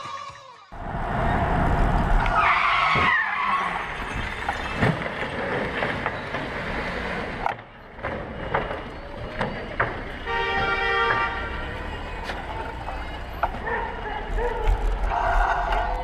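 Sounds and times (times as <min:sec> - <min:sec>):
road noise: 0:00.7 - 0:16.0
car tyres skidding: 0:00.9 - 0:07.4.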